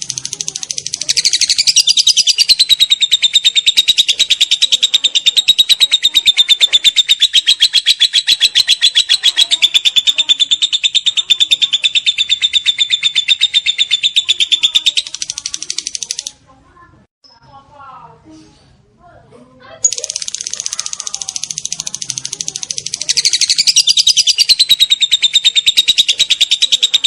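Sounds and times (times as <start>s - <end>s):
lovebird shrill trill: 1.0s - 15.3s, 19.9s - 27.0s.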